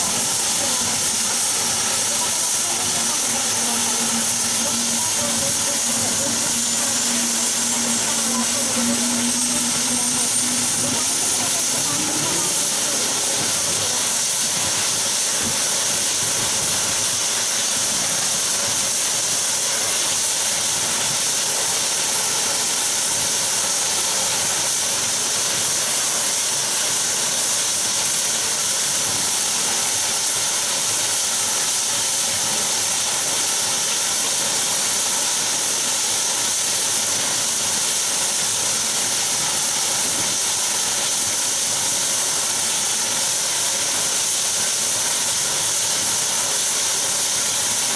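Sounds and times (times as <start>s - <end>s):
turboprop engines running: 0.0s - 26.1s.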